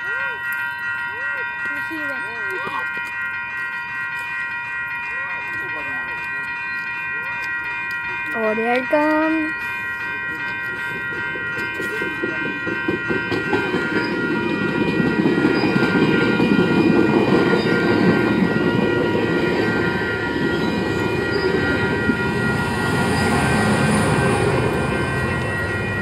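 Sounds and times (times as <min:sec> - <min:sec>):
crossing warning bell ringing: 0:00.0 - 0:26.0
train wheels rumbling on rail: 0:07.8 - 0:26.0.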